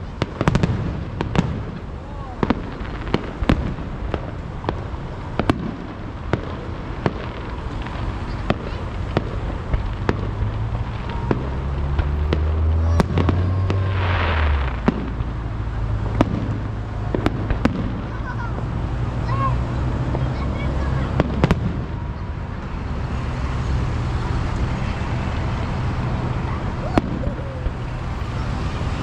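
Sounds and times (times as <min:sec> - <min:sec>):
fireworks hiss: 0:00.0 - 0:22.0
fireworks bangs: 0:00.0 - 0:29.0.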